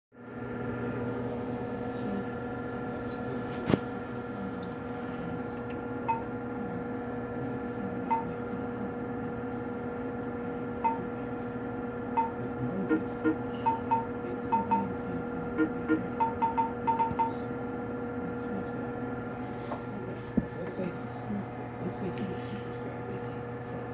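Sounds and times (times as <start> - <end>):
electrical machine hum: 0.2 - 23.9.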